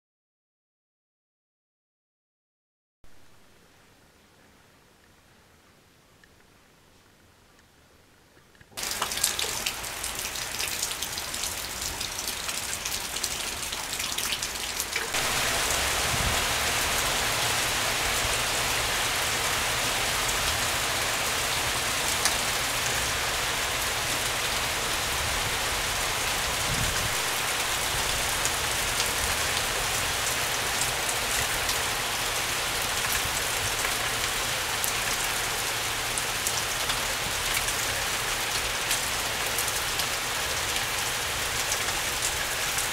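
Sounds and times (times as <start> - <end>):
heavy rain pouring: 8.8 - 42.9.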